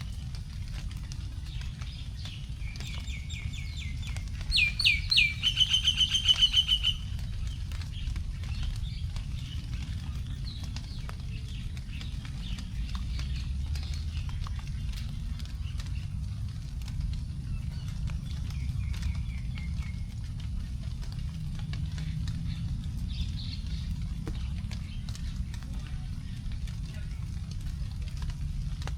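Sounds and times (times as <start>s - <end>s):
raindrops dripping onto leaves: 0.0s - 28.9s
steady low rumble: 0.0s - 28.9s
bird singing whistles and trill: 1.6s - 7.4s.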